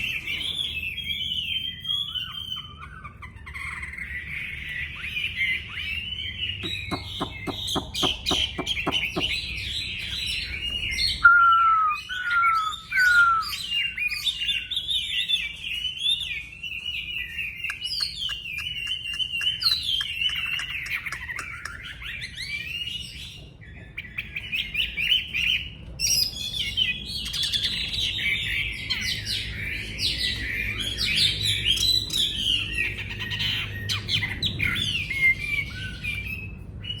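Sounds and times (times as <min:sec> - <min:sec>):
songbird singing whistled phrases: 0:00.2 - 0:04.0, 0:04.9 - 0:23.2
sharp clicks: 0:17.7 - 0:21.8.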